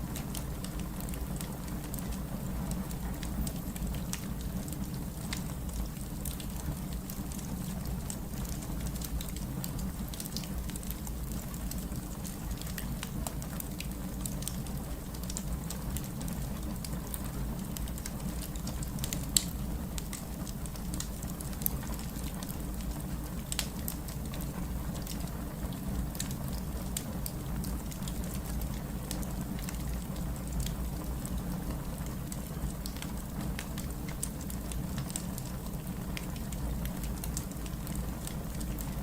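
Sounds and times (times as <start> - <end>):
fire crackles and pops: 0.0 - 39.0
fire rumbling in fireplace: 0.0 - 39.0.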